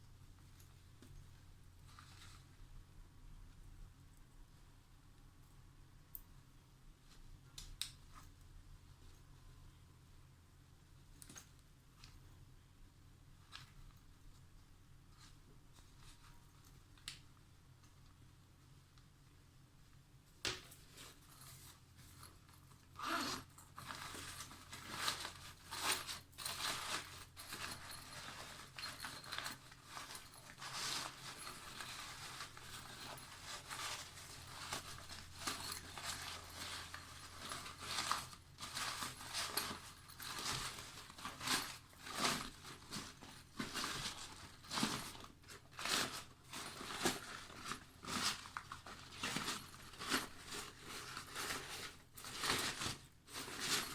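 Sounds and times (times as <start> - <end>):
faint low hum: 0.0 - 53.9
bags rustling and crinkling: 20.7 - 53.9.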